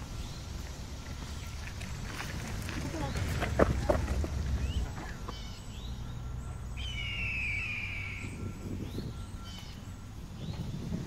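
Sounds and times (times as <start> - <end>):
birds chirping: 0.0 - 11.0
low outdoor rumble: 0.0 - 11.0
falling whistled bird note: 6.8 - 9.8.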